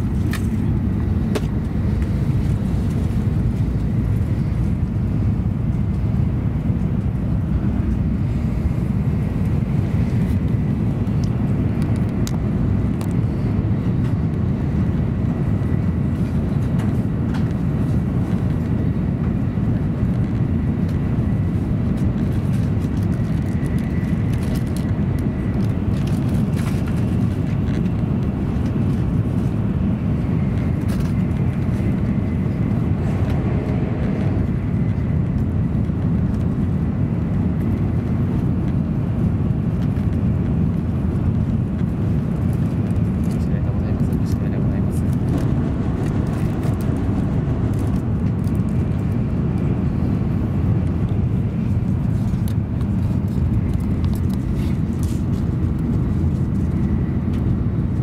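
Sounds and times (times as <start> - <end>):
train cabin low rumble: 0.0 - 58.0.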